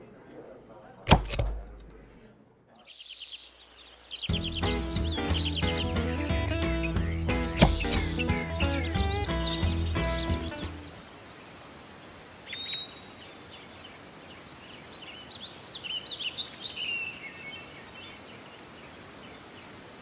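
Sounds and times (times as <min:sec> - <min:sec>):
outdoor background hiss: 0:00.0 - 0:20.0
birds chirping and whistling: 0:02.9 - 0:11.0, 0:11.8 - 0:13.8, 0:15.0 - 0:18.2.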